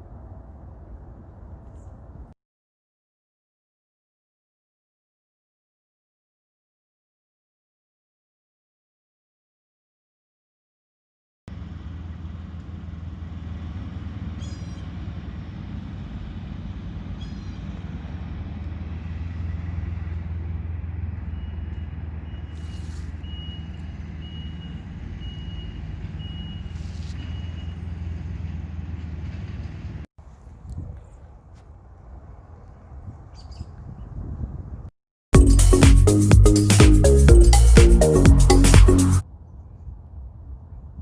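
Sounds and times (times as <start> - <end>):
vehicle engine humming: 11.5 - 30.1, 35.4 - 39.2
reversing alarm beeping: 21.2 - 28.0.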